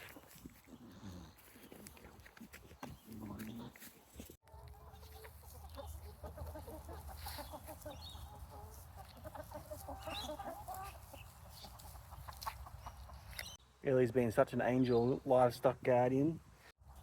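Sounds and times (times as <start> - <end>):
chickens clucking: 0.0 - 13.6.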